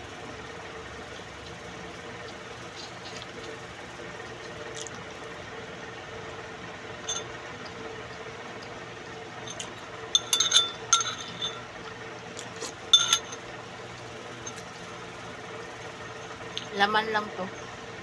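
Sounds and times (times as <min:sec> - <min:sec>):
utensils clinking on dish: 0:07.0 - 0:07.3, 0:09.5 - 0:11.7, 0:12.6 - 0:13.5, 0:14.4 - 0:14.8.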